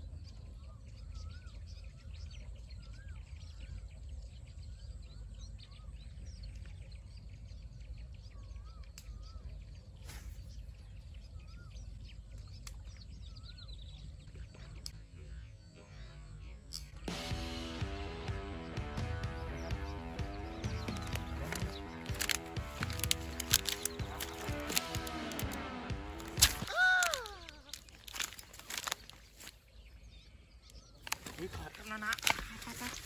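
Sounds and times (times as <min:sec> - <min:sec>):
sharp clicks: 0:20.6 - 0:29.5
high bird chirps: 0:26.1 - 0:33.0.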